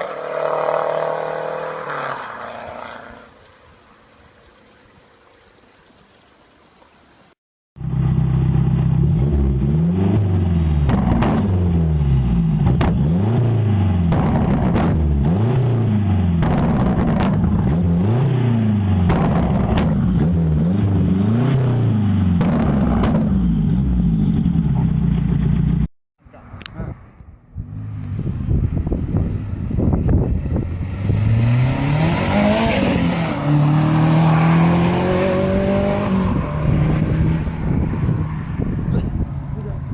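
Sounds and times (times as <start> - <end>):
car engine revving hard: 0.0 - 3.2, 30.4 - 38.2.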